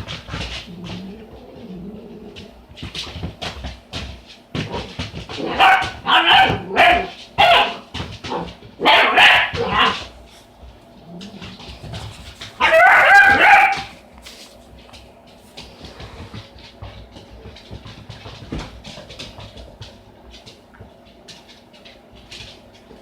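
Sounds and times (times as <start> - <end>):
puppy barking and yipping: 5.4 - 10.1, 12.5 - 14.0.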